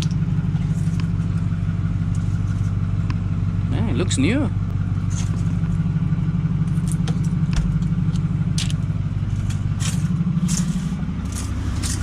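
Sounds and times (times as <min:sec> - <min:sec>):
vehicle engine idling: 0:00.0 - 0:12.0
objects clicking and scraping: 0:06.7 - 0:12.0.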